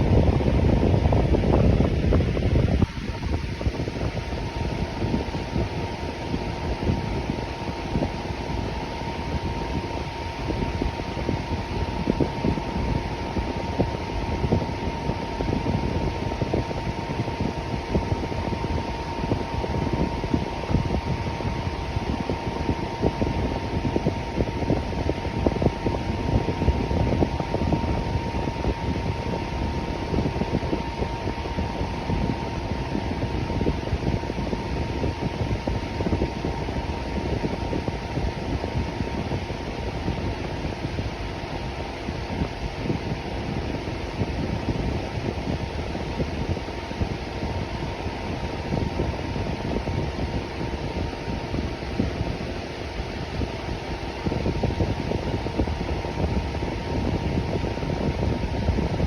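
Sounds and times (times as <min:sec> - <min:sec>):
electric fan whooshing air: 0:00.0 - 0:59.0
faint steady hum: 0:00.0 - 0:59.0.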